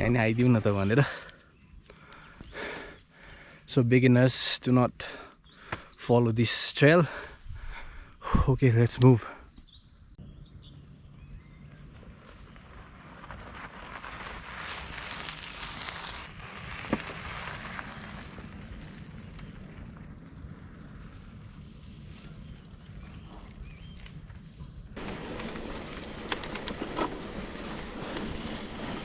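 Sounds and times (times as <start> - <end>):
small birds chirping: 0.0 - 3.9, 4.8 - 6.6, 7.2 - 12.6, 18.0 - 28.2
rustling noise: 12.6 - 18.3, 25.0 - 29.0
clicks: 25.0 - 27.2.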